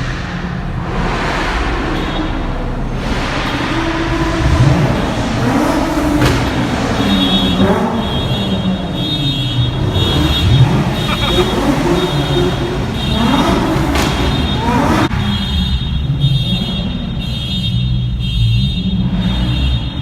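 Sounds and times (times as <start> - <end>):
car engines revving: 0.0 - 20.0
high-pitched alarm tone: 11.1 - 11.6.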